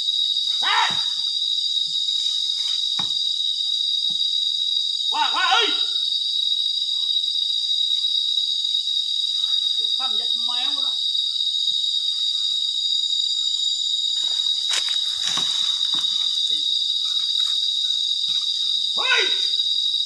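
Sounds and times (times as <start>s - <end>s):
insects droning: 0.0s - 20.0s
man shouting calls: 0.5s - 1.2s, 5.1s - 6.2s, 9.4s - 11.0s, 18.8s - 19.7s.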